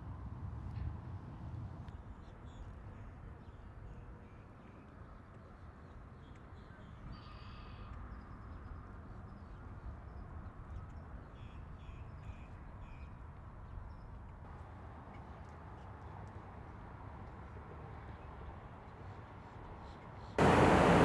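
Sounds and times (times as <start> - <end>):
distant birds calling: 20.4 - 21.0
steady low rumble: 20.4 - 21.0.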